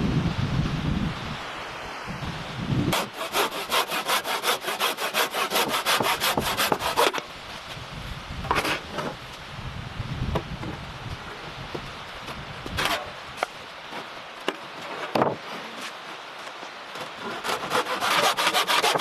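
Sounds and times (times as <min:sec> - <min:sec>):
hand saw cutting wood: 0:02.9 - 0:07.3, 0:12.8 - 0:13.1, 0:17.0 - 0:19.0.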